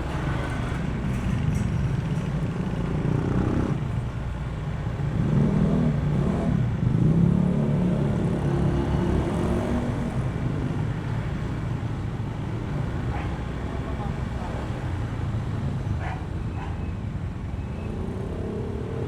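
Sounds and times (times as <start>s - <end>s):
road and wind noise: 0.0s - 19.0s.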